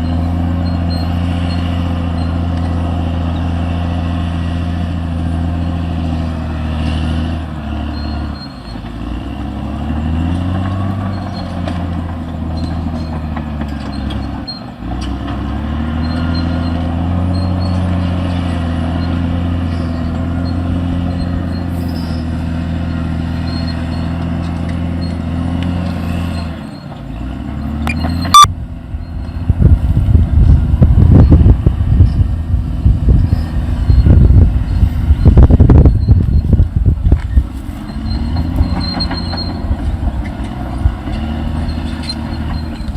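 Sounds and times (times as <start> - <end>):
bulldozer diesel engine: 0.0 - 42.9
low buffeting: 28.3 - 42.9.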